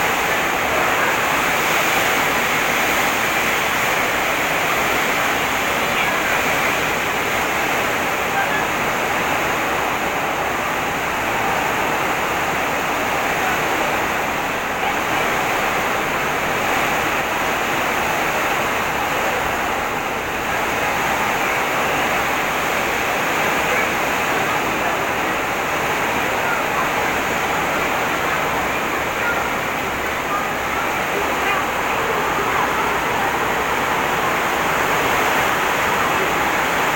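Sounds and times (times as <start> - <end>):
heavy rain pouring: 0.0 - 36.9.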